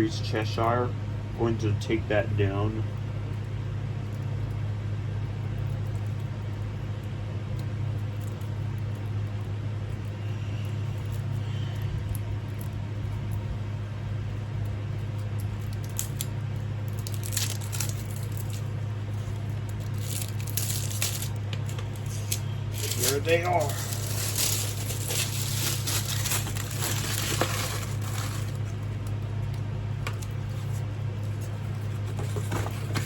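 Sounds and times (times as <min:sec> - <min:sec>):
steady low hum: 0:00.0 - 0:33.0
packaging crinkling: 0:15.4 - 0:29.2.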